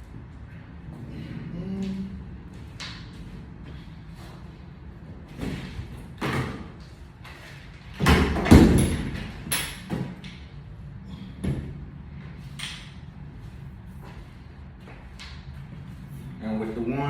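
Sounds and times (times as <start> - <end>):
equipment knocking and thudding: 7.9 - 10.2.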